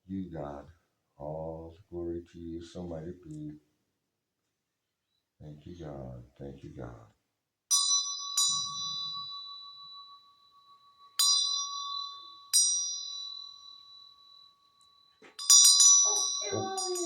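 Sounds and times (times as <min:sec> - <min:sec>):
small metal bell ringing: 0:07.7 - 0:17.0.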